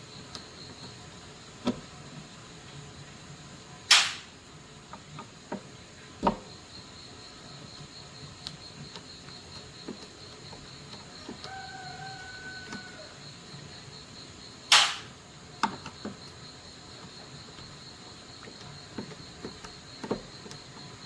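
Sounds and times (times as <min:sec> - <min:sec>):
faint steady hum: 0:00.0 - 0:21.0
sharp knock: 0:03.9 - 0:04.3, 0:14.7 - 0:15.1.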